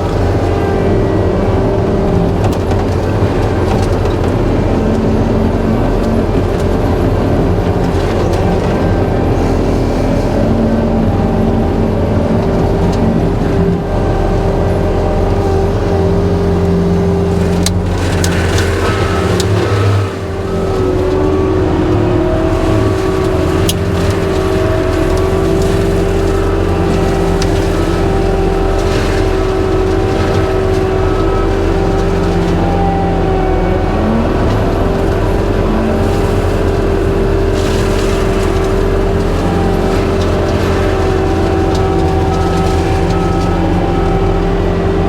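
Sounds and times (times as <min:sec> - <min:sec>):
diesel engine at high throttle: 0:00.0 - 0:45.0
mulcher whine: 0:00.0 - 0:45.0.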